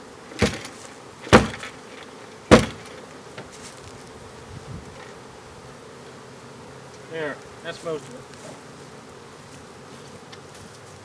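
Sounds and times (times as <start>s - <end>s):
bees buzzing: 0.0s - 11.0s
wooden box knocking: 1.3s - 1.7s, 2.5s - 2.9s.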